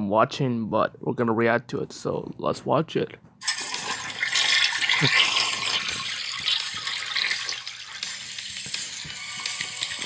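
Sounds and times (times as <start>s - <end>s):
tap water splashing into sink: 3.4s - 10.0s.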